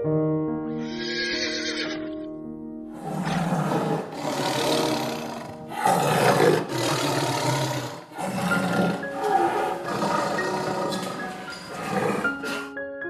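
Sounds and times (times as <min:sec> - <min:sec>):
large animal roaring: 0:03.0 - 0:12.7.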